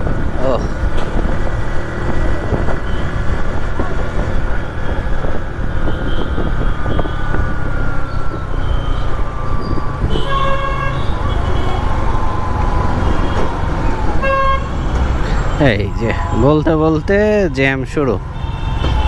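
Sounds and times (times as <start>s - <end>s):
wind on microphone: 0.0s - 14.5s
motorcycle engine and road rumble: 0.0s - 19.0s
vehicle horn: 10.1s - 11.9s, 14.2s - 14.7s.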